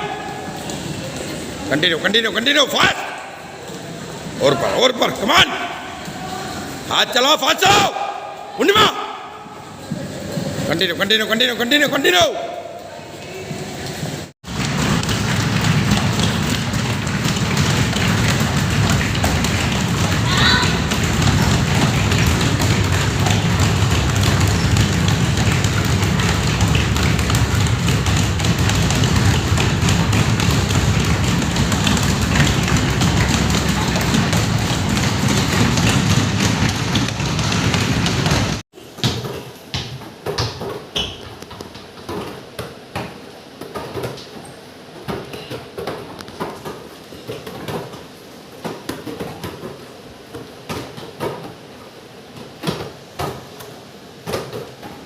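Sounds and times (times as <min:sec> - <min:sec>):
children running footfalls: 0:13.6 - 0:38.6.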